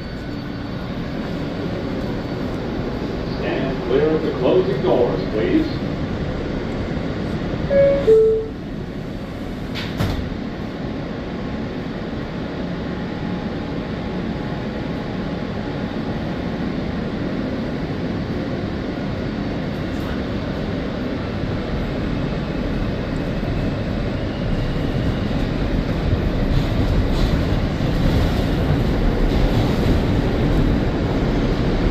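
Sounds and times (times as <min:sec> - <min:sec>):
subway train rail noise: 0:00.0 - 0:31.9.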